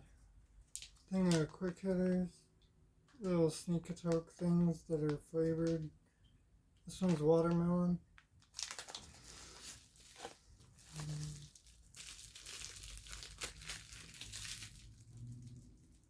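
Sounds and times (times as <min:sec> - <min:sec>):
packaging crinkling and tearing: 0:00.6 - 0:01.8, 0:08.4 - 0:16.0.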